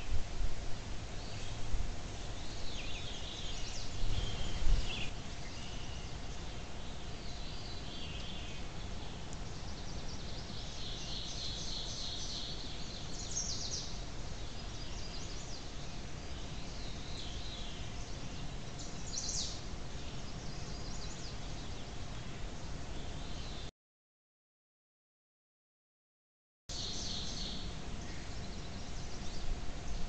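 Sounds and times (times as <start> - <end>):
low outdoor rumble: 0.0 - 23.6
small birds chirping: 1.1 - 23.7, 26.7 - 30.0.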